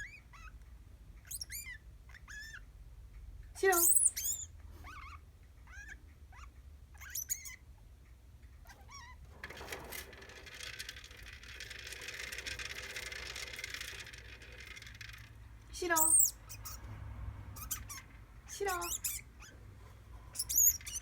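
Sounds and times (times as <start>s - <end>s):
degu chirping: 1.2s - 2.6s, 3.7s - 7.6s, 15.9s - 16.9s, 17.6s - 19.6s, 20.3s - 21.0s
steady rustling: 9.2s - 21.0s.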